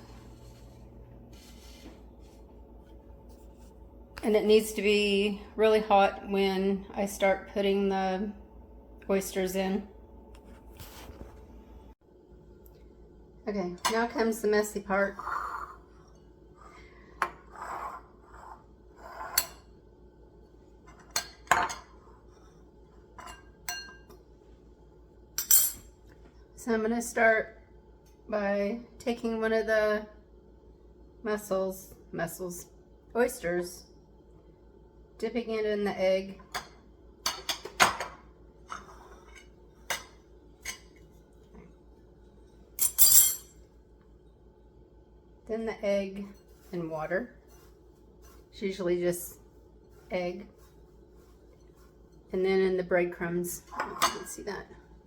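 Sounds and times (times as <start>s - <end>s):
dishes and utensils clinking: 42.8s - 43.6s.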